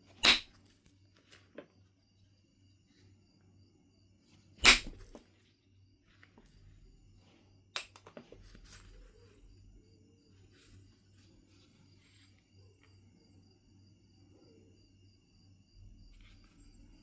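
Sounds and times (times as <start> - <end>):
stone strikes cracking: 0.2 - 0.6, 4.6 - 5.2.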